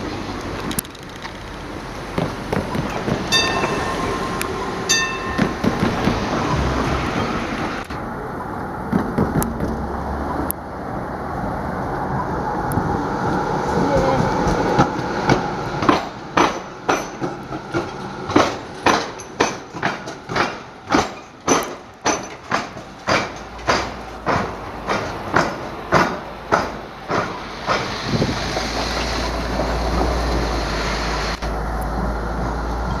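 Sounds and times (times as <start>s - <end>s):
low train rumble: 0.0s - 33.0s
train wheels clacking: 2.1s - 7.4s, 13.9s - 30.4s.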